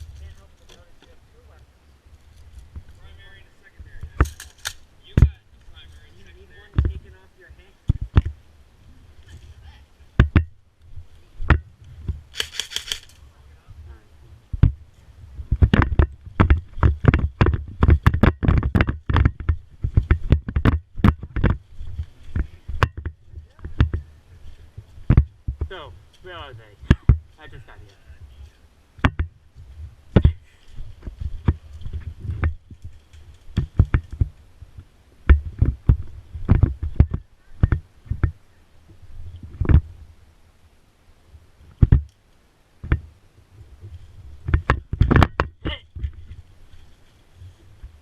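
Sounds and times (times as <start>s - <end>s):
kit jostling against microphone: 4.0s - 7.1s, 11.4s - 13.2s, 15.4s - 34.4s, 35.3s - 38.4s
sharp knocks and clicks: 10.2s - 10.6s, 11.4s - 13.1s, 15.5s - 21.6s, 22.4s - 24.0s, 29.0s - 29.4s, 31.0s - 34.3s, 35.3s - 38.4s, 41.8s - 42.2s, 44.5s - 46.2s.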